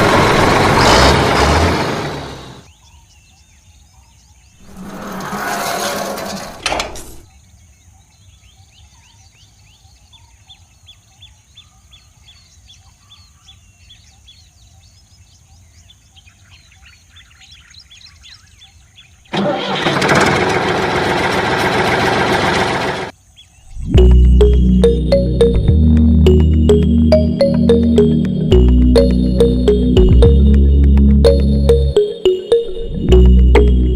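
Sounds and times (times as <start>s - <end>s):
small engine running loudly: 0.0s - 2.6s, 19.3s - 23.1s.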